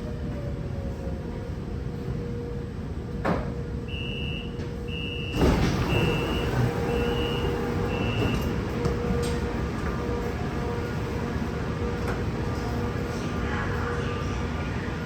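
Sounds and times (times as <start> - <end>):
high warning beeps: 3.9 - 8.5
sliding doors rushing: 5.3 - 13.0.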